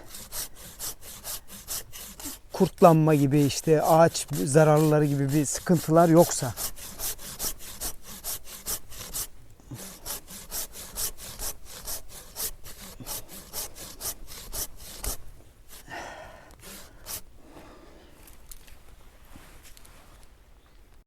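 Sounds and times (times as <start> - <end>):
pruning saw cutting branch: 0.0 - 17.3
rustle: 15.2 - 21.0.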